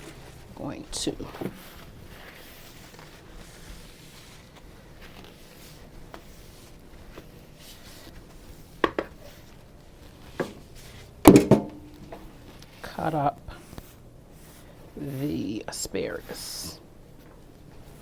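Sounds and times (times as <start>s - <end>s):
kitchen items knocking on counter: 11.3s - 12.2s.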